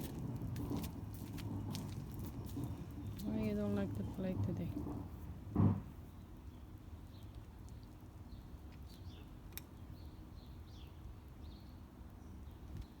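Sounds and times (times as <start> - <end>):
low outdoor rumble: 0.0 - 6.2
small birds chirping: 2.2 - 4.6, 6.5 - 13.0.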